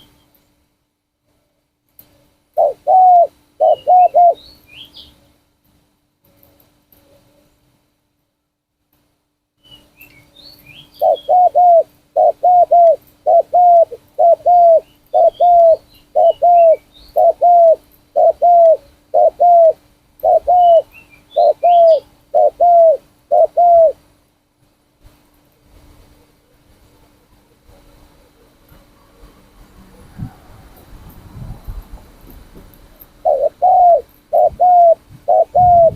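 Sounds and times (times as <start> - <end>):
dove cooing: 2.6 - 4.4, 11.0 - 24.0, 33.2 - 35.9
small birds chirping: 2.6 - 5.2, 9.6 - 24.0.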